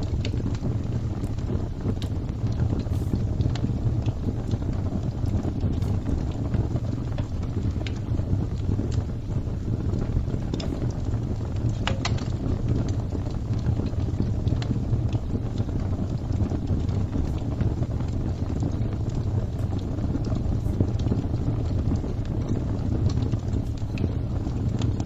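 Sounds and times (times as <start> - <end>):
fire crackling: 0.0 - 25.0
low rumble of flames: 0.0 - 25.0.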